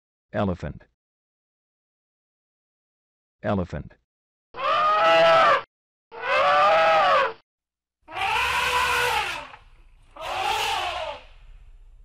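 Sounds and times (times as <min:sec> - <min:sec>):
elephant trumpeting: 0:04.6 - 0:05.6, 0:06.2 - 0:07.4, 0:08.1 - 0:11.5.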